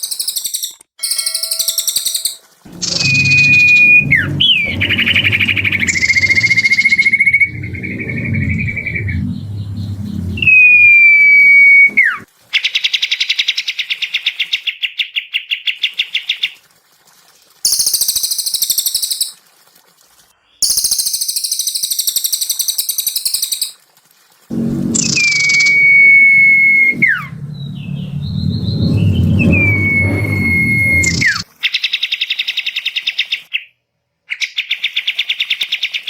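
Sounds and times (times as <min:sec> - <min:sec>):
bird trill: 0:00.0 - 0:12.0
long bird whistle: 0:00.1 - 0:12.2, 0:24.6 - 0:31.4
low rumble: 0:02.7 - 0:12.3, 0:24.5 - 0:31.4.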